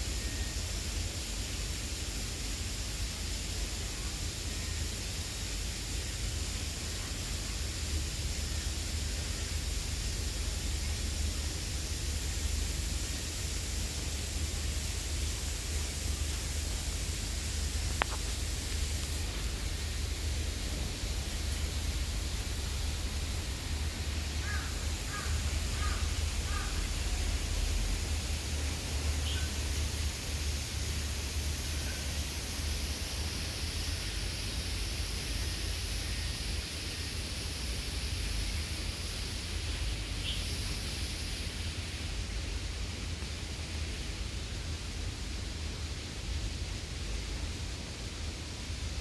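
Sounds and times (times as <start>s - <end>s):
low rumble and hiss: 0.0s - 49.0s
bird calling: 24.4s - 27.3s.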